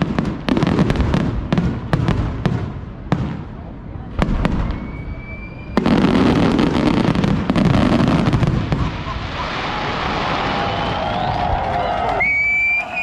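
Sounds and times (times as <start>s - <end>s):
fireworks crackling: 0.0s - 13.0s
firework bang: 4.1s - 11.4s.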